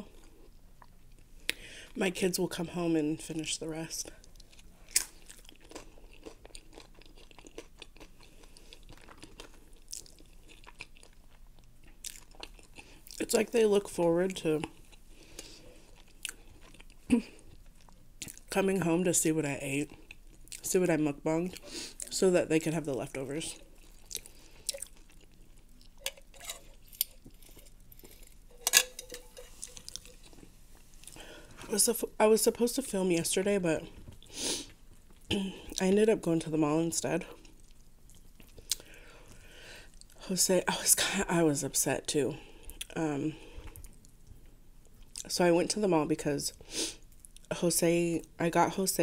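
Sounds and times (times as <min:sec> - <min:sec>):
chewing crunchy chips: 0:04.2 - 0:13.2, 0:14.6 - 0:18.5, 0:23.5 - 0:31.2
utensils clinking on containers: 0:28.5 - 0:29.9.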